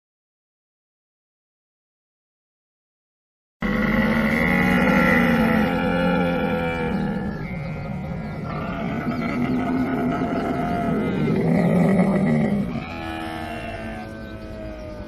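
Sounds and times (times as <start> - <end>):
camel calling: 3.6 - 15.0.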